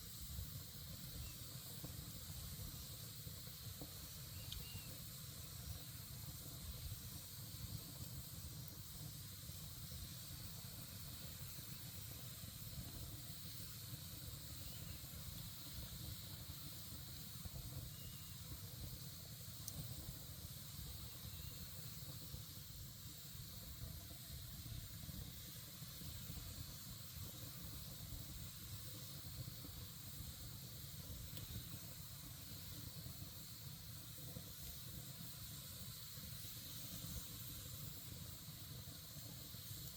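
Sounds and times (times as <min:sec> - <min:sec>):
campfire hissing: 0:00.0 - 0:39.9
campfire low rumble: 0:00.0 - 0:39.9
fire crackling: 0:00.0 - 0:39.9.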